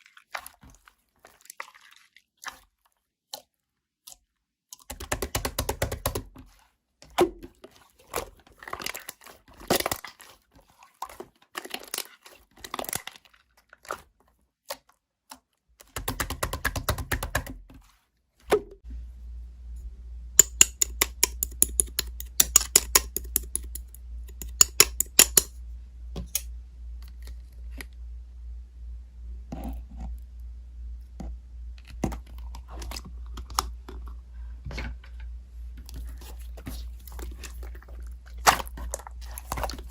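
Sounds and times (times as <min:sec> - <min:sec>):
low steady hum: 0:18.6 - 0:39.9.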